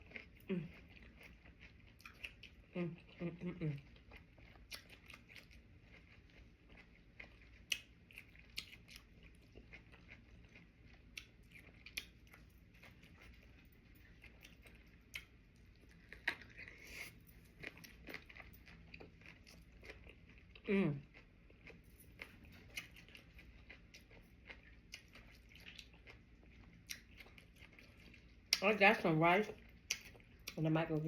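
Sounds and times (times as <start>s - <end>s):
person chewing food crunchily: 0.0s - 31.0s.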